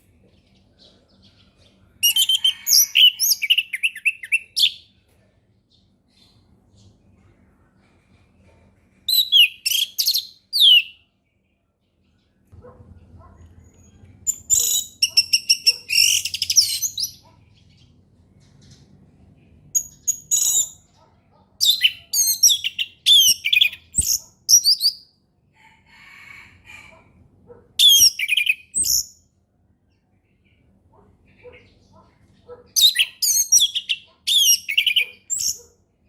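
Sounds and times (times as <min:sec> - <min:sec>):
faint low hum: 0:04.8 - 0:09.2, 0:11.0 - 0:15.0.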